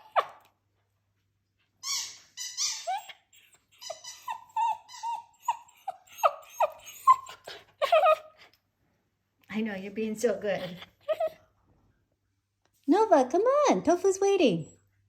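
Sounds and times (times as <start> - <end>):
small dog whimpering: 0.0 - 0.5, 1.8 - 8.5, 10.6 - 11.4.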